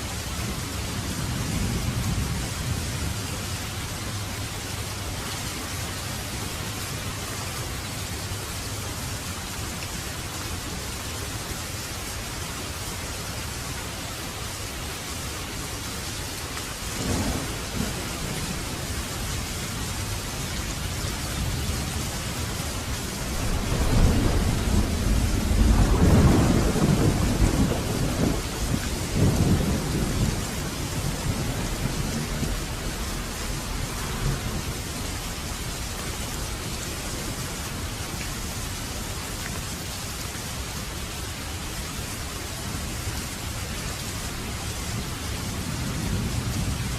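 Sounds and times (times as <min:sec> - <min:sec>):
steady rain falling: 0:00.0 - 0:46.9
low rumble of thunder: 0:00.2 - 0:07.1, 0:16.9 - 0:38.8, 0:44.3 - 0:46.9.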